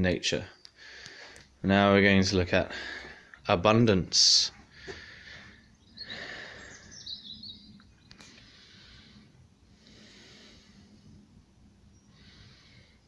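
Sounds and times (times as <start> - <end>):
low steady hiss: 0.0 - 13.0
high bird chirps: 5.5 - 8.3.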